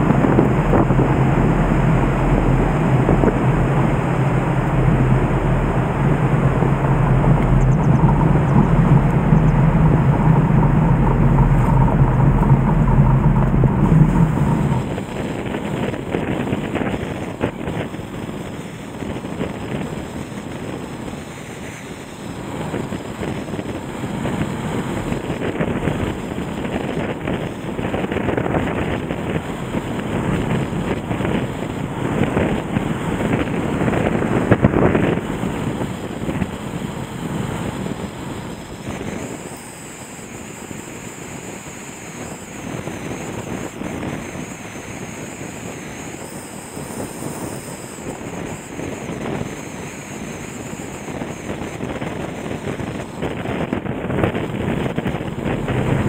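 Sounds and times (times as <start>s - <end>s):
floodwater rushing: 0.0s - 28.0s
wind buffeting microphone: 0.0s - 56.0s.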